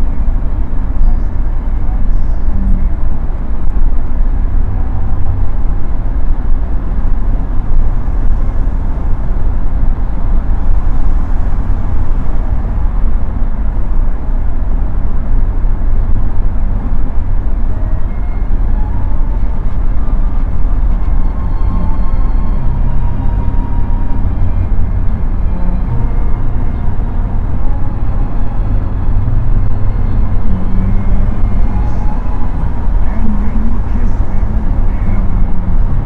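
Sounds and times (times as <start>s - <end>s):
car engine rumble from cabin: 0.0s - 36.0s.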